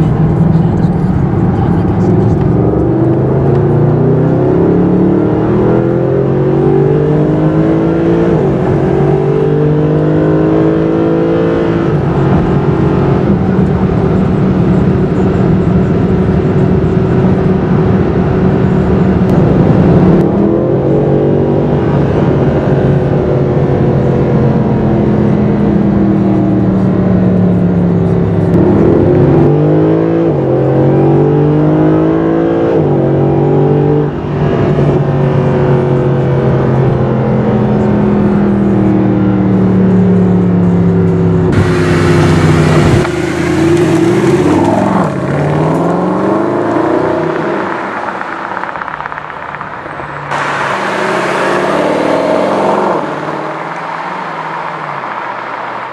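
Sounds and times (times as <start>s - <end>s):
car engine accelerating through gears: 0.0s - 55.9s.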